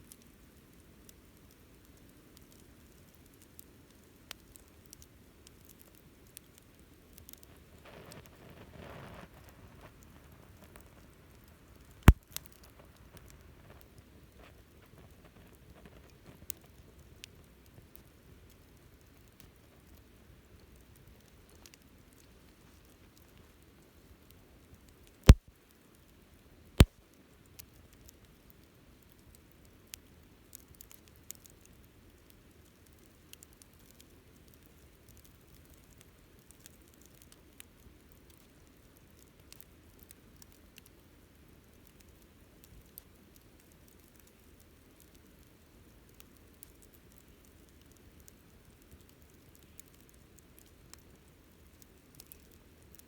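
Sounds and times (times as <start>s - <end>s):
low hiss of burning fire: 0.0s - 53.0s
campfire crackling: 0.1s - 26.2s, 26.8s - 53.0s
loud pops of fire: 11.9s - 13.4s.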